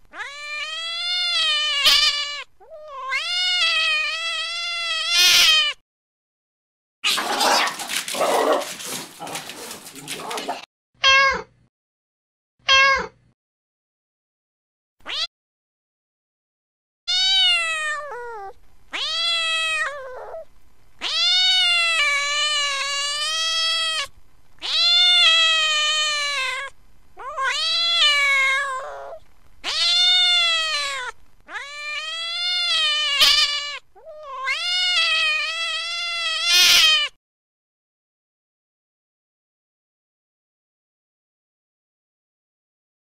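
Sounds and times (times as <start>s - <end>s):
cat yowling meows: 0.0s - 5.8s, 7.0s - 11.5s, 12.7s - 13.2s, 15.0s - 15.3s, 17.1s - 37.2s.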